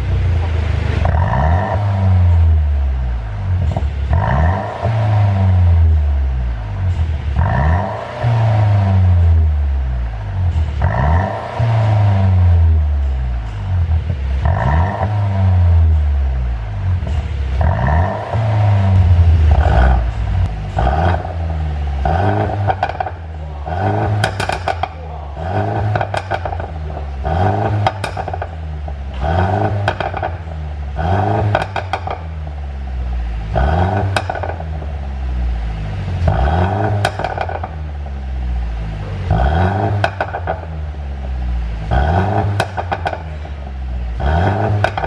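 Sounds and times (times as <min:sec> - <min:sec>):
car engine revving: 0:00.0 - 0:45.0
exhaust pops and crackles: 0:18.7 - 0:32.5, 0:33.5 - 0:35.0, 0:36.2 - 0:38.0, 0:39.0 - 0:45.0.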